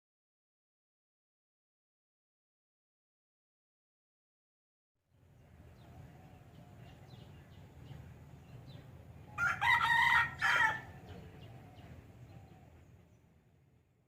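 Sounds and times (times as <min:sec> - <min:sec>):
rooster crowing: 0:09.3 - 0:11.1.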